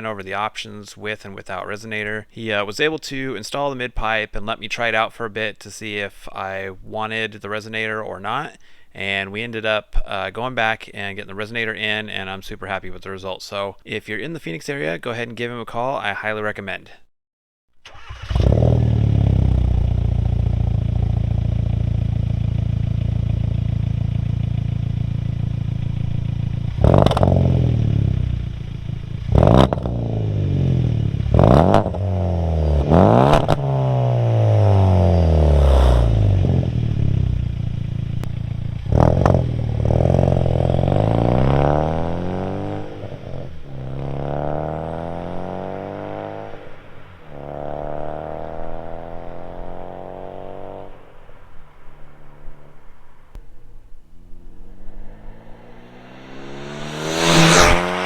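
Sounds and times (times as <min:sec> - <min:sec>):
car engine idling and revving: 0:17.9 - 0:58.0.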